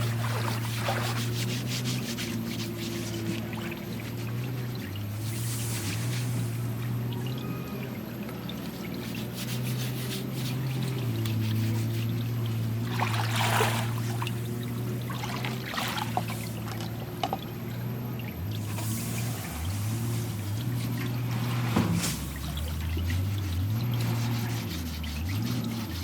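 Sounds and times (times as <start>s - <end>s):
water pouring and splashing: 0.0s - 26.0s.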